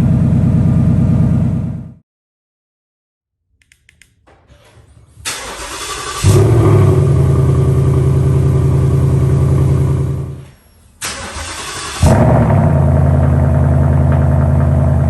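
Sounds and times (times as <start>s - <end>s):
car engine running loudly: 6.2s - 10.4s, 12.0s - 15.0s.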